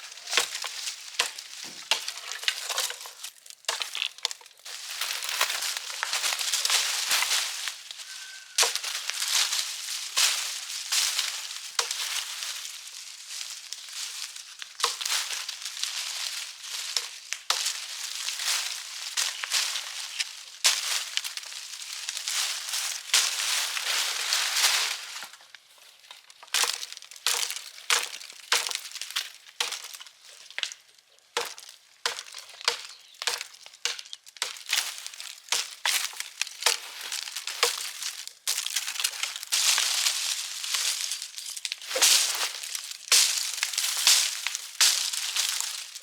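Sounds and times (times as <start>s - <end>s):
debris scraping: 0.0s - 20.8s
debris crunching and clinking: 0.1s - 46.0s.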